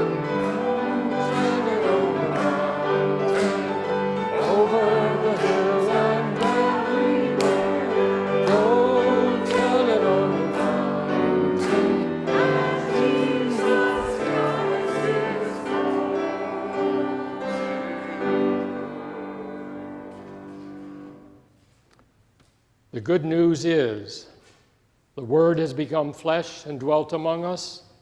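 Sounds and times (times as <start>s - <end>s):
choir singing a hymn: 0.0s - 21.3s
instrumental accompaniment: 0.0s - 21.6s.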